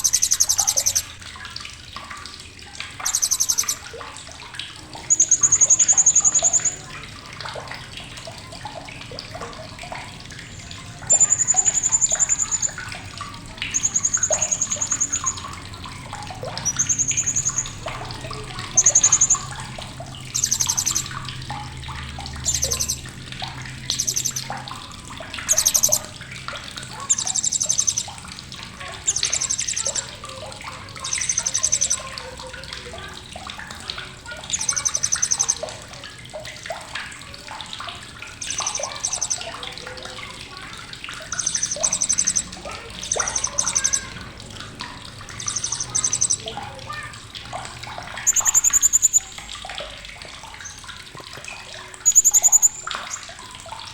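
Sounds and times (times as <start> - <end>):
parrot calling: 0.0 - 1.1, 3.0 - 3.8, 5.1 - 6.9, 10.5 - 12.9, 13.6 - 15.4, 16.5 - 19.7, 20.3 - 21.2, 22.4 - 23.0, 23.8 - 24.5, 25.5 - 26.2, 26.9 - 28.2, 28.8 - 30.2, 31.0 - 32.1, 34.5 - 35.6, 38.4 - 39.6, 41.3 - 44.2, 45.3 - 46.6, 48.2 - 49.4, 52.0 - 53.2.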